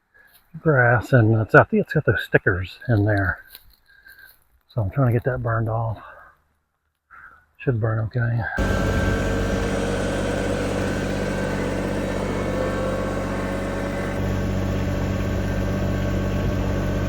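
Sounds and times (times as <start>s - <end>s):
engine running steadily: 8.6s - 17.0s
faint rising whine: 8.6s - 17.0s.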